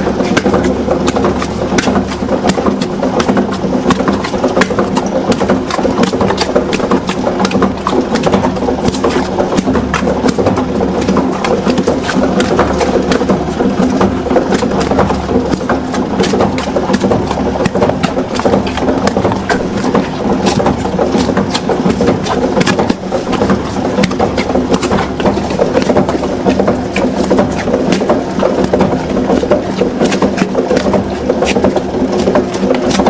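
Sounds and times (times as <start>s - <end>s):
machine humming: 0.0s - 33.0s
rapid irregular clatter: 0.0s - 33.0s.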